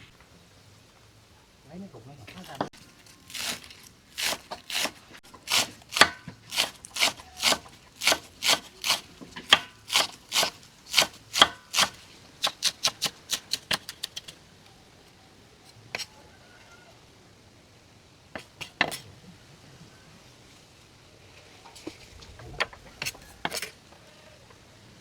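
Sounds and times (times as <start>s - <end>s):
knife chopping on cutting board: 3.3s - 14.1s.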